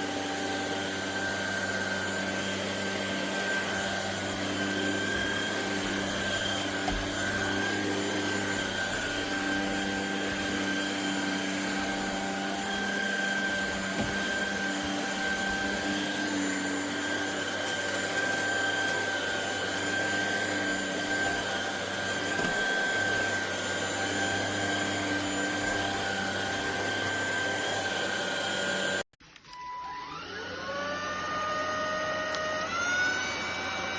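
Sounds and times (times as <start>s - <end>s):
stick vacuum running: 0.0s - 29.0s.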